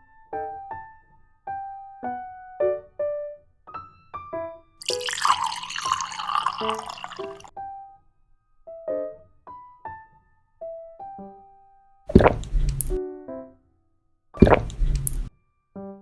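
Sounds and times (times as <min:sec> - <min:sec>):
water running: 0:04.8 - 0:07.5, 0:14.4 - 0:15.3.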